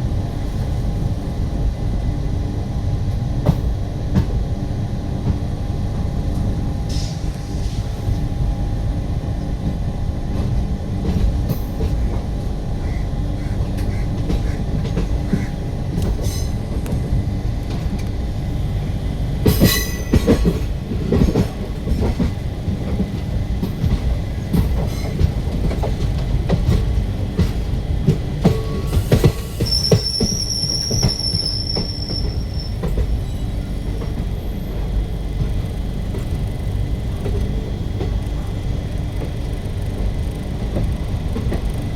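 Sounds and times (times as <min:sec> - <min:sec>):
train rumbling on rails: 0:00.0 - 0:41.9
sharp train clanks: 0:03.0 - 0:41.9
high wheel squeal: 0:28.7 - 0:33.7.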